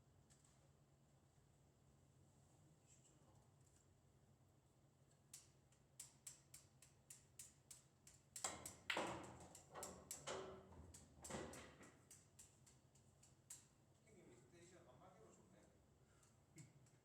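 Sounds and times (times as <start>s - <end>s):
pool balls knocking and rattling: 8.4s - 12.1s
pool balls clicking: 8.4s - 12.6s.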